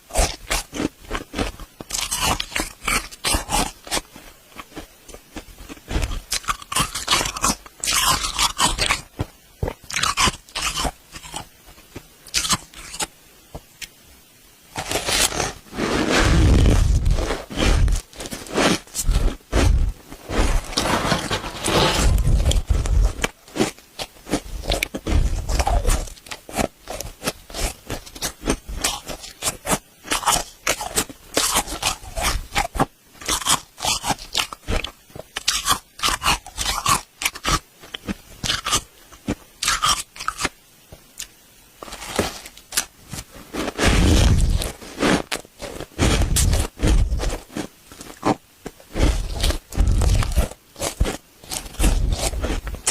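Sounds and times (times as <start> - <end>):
crunchy chewing of frost: 0.0 - 13.1, 14.7 - 40.6, 41.2 - 52.9
spoon scraping frost: 14.8 - 37.5, 41.8 - 52.9.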